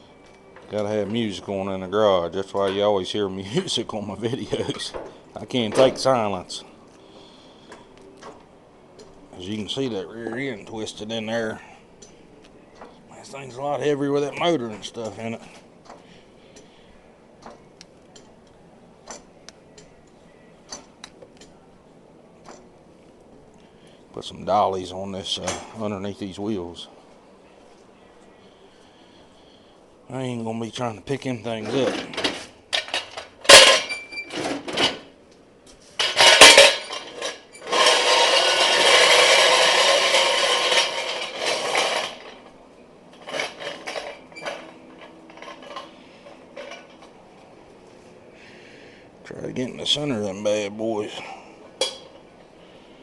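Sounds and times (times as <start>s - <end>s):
metal clanks: 31.6s - 35.1s, 36.0s - 42.5s, 43.1s - 47.2s, 51.8s - 52.3s.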